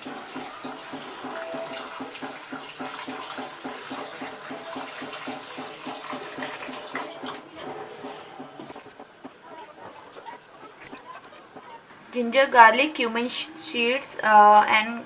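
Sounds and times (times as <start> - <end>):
water running from a tap: 0.0 - 7.5
hands rinsing potato: 0.0 - 7.6.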